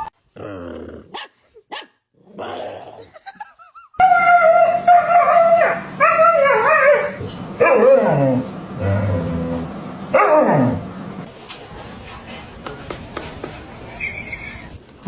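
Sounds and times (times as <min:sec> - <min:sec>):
dog howling: 0:04.0 - 0:10.8.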